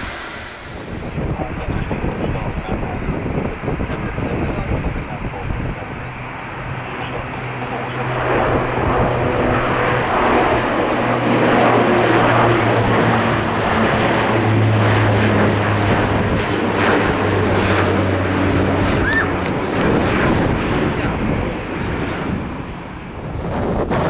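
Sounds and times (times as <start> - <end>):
propellers humming: 0.0 - 24.0
turboprop plane taking off: 0.0 - 24.0.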